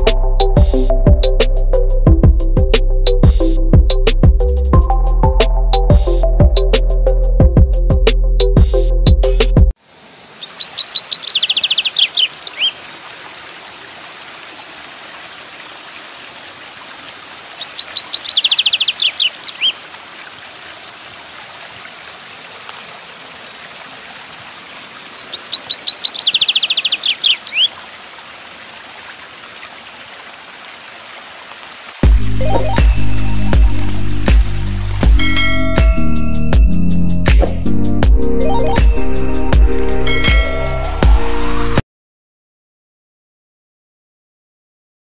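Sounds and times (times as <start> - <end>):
rushing mountain stream: 9.8 - 36.6, 38.5 - 41.8.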